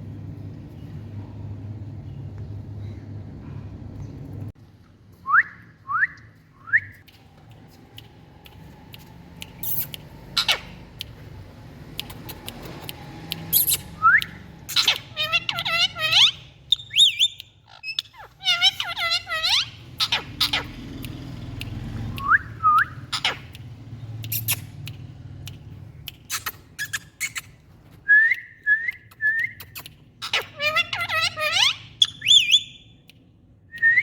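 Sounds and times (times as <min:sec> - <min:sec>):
low background hum: 0:00.0 - 0:34.0
parrot calling: 0:09.6 - 0:10.9, 0:13.5 - 0:21.2, 0:22.1 - 0:23.7, 0:29.5 - 0:33.0.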